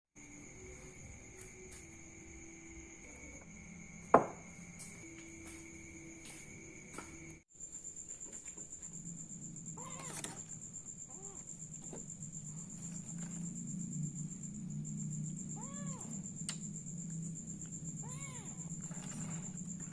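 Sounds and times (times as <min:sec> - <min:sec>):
crickets droning: 0:00.2 - 0:19.9
cat meowing: 0:09.8 - 0:10.4, 0:15.6 - 0:16.2, 0:18.0 - 0:18.6.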